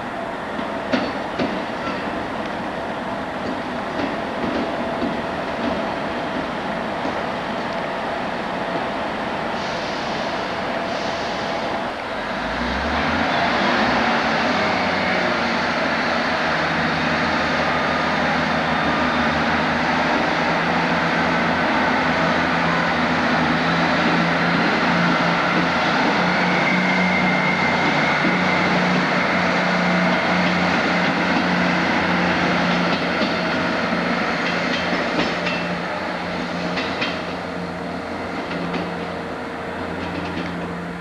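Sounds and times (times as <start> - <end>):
diesel train engine: 0.0 - 41.0
rail and wheel noise: 0.0 - 41.0.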